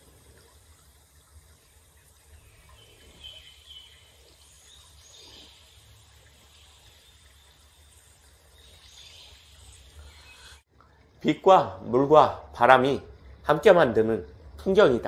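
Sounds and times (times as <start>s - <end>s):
soft bird chirps: 1.5s - 10.7s.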